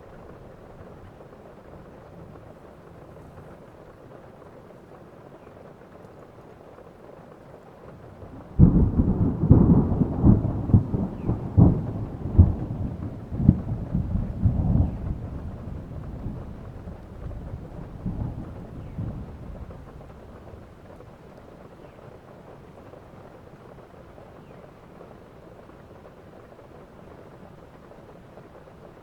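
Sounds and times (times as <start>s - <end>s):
steady rain: 0.0s - 29.0s
thunder crack and rumble: 8.0s - 21.3s.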